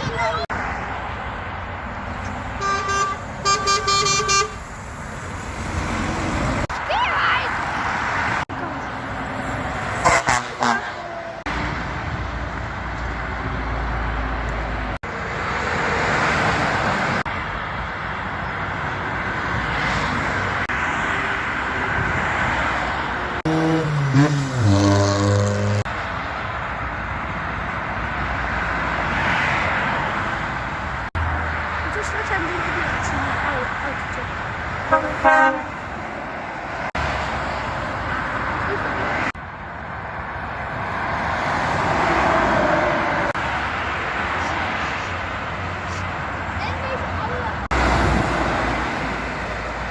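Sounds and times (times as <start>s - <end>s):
heavy road traffic: 0.0s - 49.9s
truck horn: 2.6s - 4.7s, 10.0s - 11.4s, 23.4s - 25.9s, 34.9s - 35.9s.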